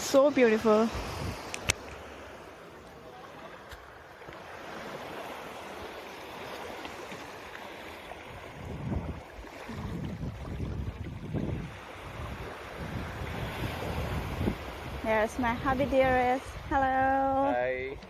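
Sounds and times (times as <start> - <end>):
wind rumbling on microphone: 0.0 - 2.4, 7.6 - 18.0
sea waves washing on shore: 0.0 - 18.0.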